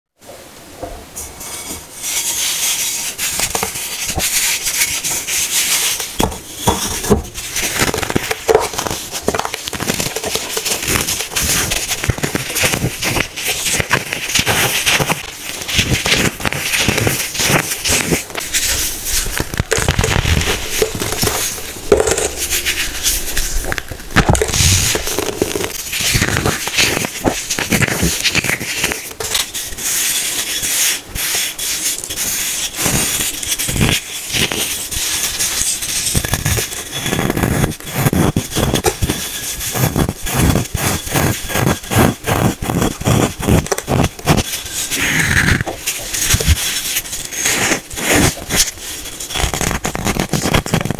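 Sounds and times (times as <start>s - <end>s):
baking soda crunching: 3.1s - 29.6s.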